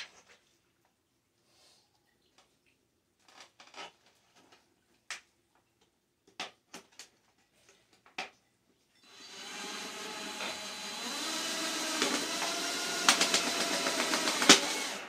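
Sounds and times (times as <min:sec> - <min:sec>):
power drill running: 0:09.0 - 0:15.0.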